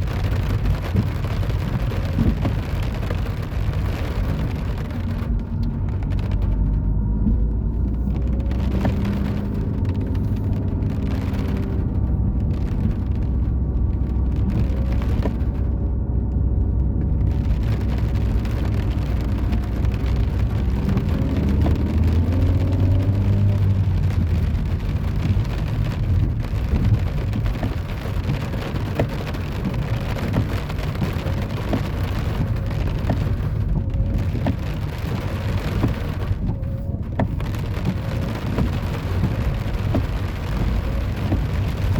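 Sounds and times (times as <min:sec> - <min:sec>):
car engine running: 0:00.0 - 0:41.9
rain hiss: 0:16.8 - 0:41.9
engine revving: 0:17.3 - 0:25.1.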